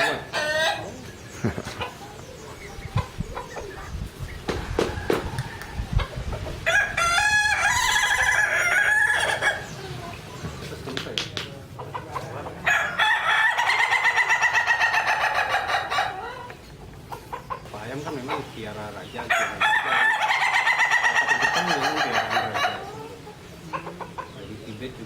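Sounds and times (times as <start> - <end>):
rooster crowing: 4.5 - 9.7, 12.6 - 16.5, 19.3 - 23.1.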